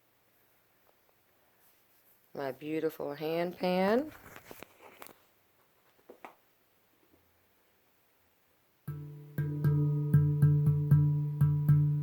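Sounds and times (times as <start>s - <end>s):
handpan note ringing: 8.9s - 12.0s.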